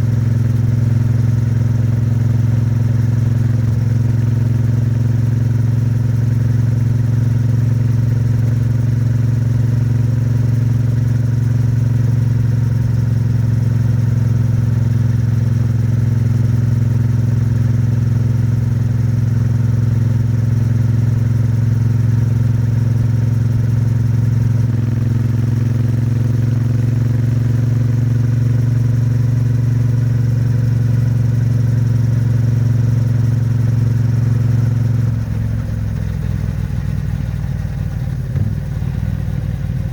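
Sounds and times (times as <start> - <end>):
motorcycle engine cruising: 11.7 - 39.9.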